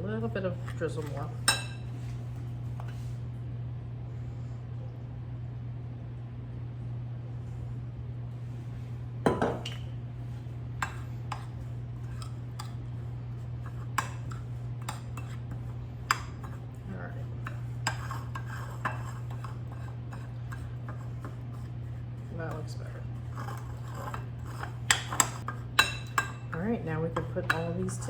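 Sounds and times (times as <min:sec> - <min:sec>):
spoon stirring crumbly topping: 0:00.5 - 0:01.5, 0:10.8 - 0:28.0
utensil clinking against bowl: 0:00.6 - 0:01.9, 0:17.4 - 0:21.6, 0:22.2 - 0:28.0.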